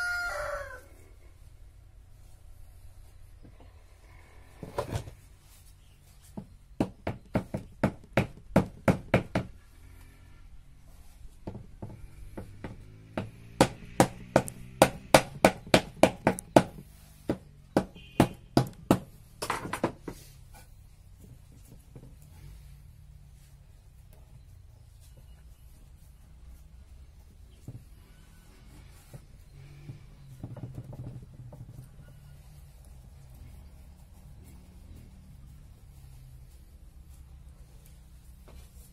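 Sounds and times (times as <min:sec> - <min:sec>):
hammer driving nails into wood: 0:12.4 - 0:20.0.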